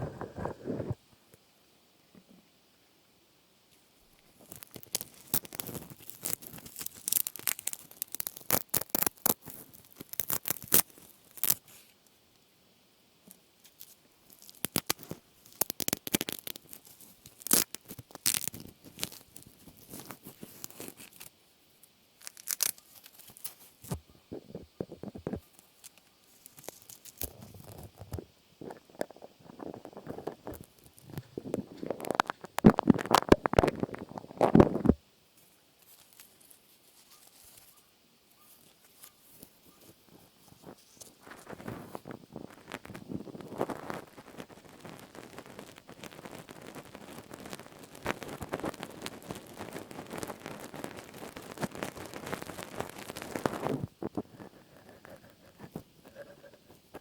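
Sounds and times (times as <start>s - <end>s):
crackling and tearing by hand: 4.2s - 12.0s, 13.3s - 21.3s, 22.2s - 57.0s
soft rustling: 13.2s - 57.0s.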